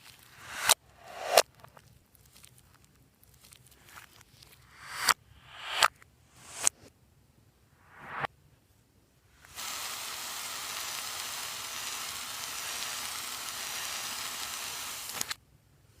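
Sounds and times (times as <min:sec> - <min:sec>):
rising swoosh: 0:00.4 - 0:01.4, 0:04.7 - 0:06.7, 0:07.8 - 0:08.3
slime crackling with tiny pops: 0:01.6 - 0:04.5.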